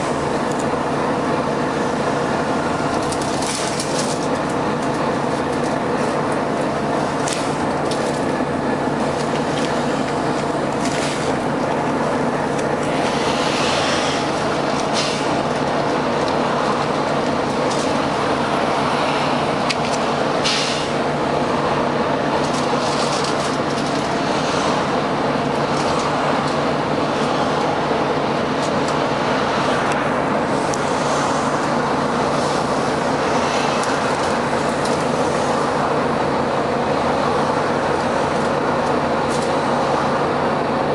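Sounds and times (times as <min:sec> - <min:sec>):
bus diesel engine droning: 0:00.0 - 0:40.9
rattles and clicks: 0:02.9 - 0:13.0, 0:22.4 - 0:24.2, 0:25.5 - 0:26.6
short air hisses: 0:20.4 - 0:20.9.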